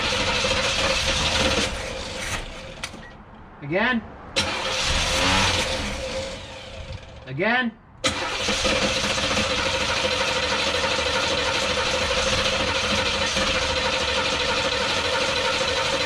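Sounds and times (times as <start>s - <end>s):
car engine turning over: 0.0s - 3.3s, 4.3s - 7.3s, 8.0s - 16.0s
constant whine: 0.0s - 16.0s.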